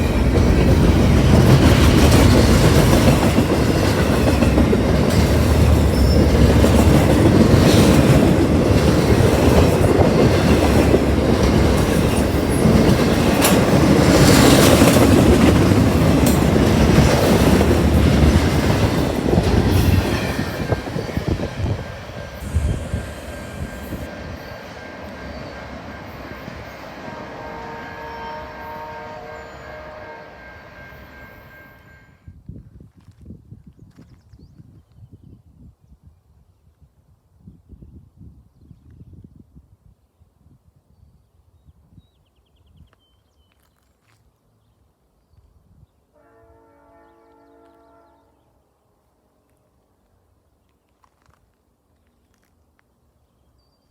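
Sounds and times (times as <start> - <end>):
train wheels clattering over rail joints: 0.0 - 24.1.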